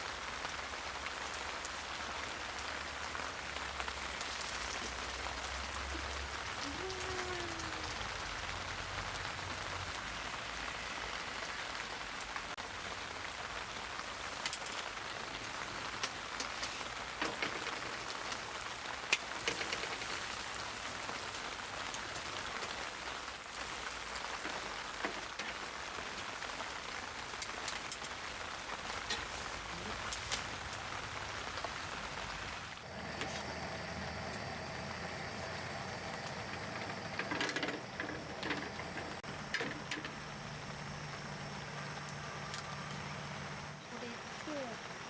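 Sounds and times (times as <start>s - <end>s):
steady rain falling: 0.0s - 45.0s
sharp taps of raindrops: 12.2s - 32.6s.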